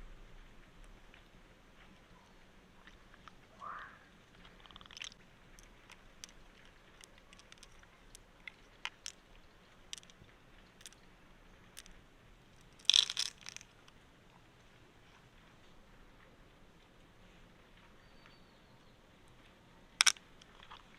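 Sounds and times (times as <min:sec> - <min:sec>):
mussel shells clicking: 0:04.3 - 0:12.0, 0:12.6 - 0:14.0, 0:20.0 - 0:20.9
shell crunching scrape: 0:04.4 - 0:09.2, 0:12.6 - 0:13.8, 0:20.0 - 0:20.9.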